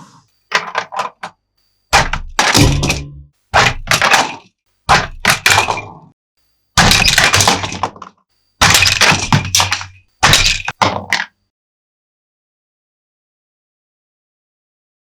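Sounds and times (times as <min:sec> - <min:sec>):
plastic toys crashing and clattering: 0:00.5 - 0:01.3, 0:02.0 - 0:06.1, 0:06.8 - 0:11.4.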